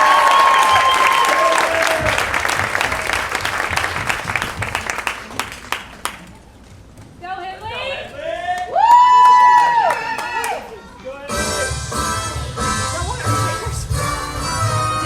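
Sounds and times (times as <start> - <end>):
audience applause: 0.0 - 6.4, 8.8 - 10.8.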